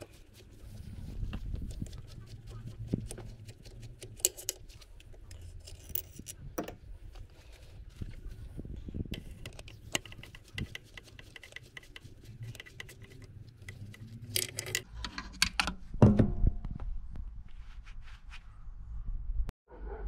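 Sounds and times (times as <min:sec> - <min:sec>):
metal tools clicking: 0:13.7 - 0:14.9
metal parts clanking: 0:14.2 - 0:15.7.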